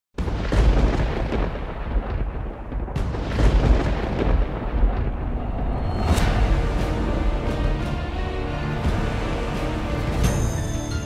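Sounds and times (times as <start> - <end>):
sharp cracks and booms: 0.2 - 8.2
deep continuous rumbling: 0.3 - 10.3.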